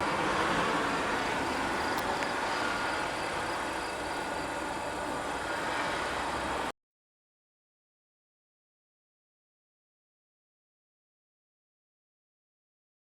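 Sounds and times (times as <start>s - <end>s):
outdoor background noise: 0.0s - 6.8s.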